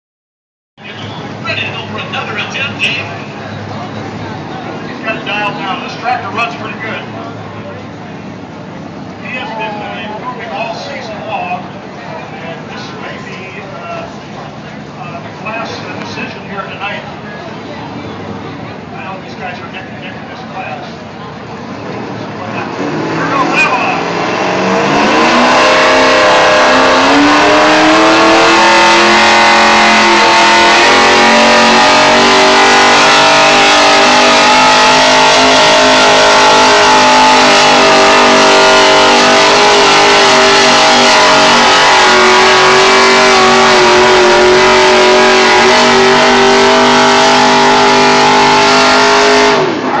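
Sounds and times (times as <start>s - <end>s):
tractor engine at full throttle: 20.6s - 50.0s.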